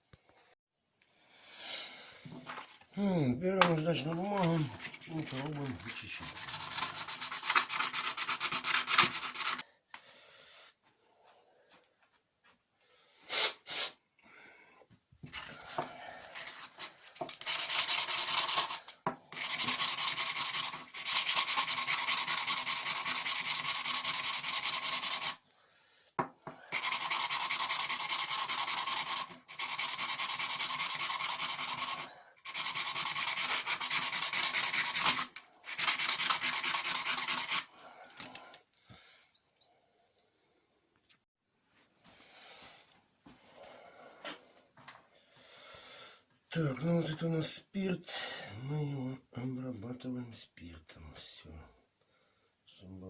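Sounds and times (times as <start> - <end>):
sandpaper scraping on tube: 3.8 - 9.6, 16.3 - 25.4, 26.7 - 37.7.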